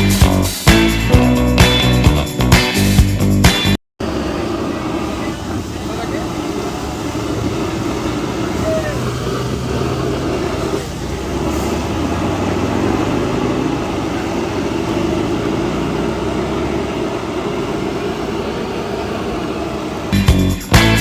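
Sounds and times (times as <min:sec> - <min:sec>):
music with a beat: 0:00.0 - 0:03.8, 0:20.2 - 0:21.0
road noise: 0:00.0 - 0:21.0
truck engine hum: 0:00.0 - 0:21.0.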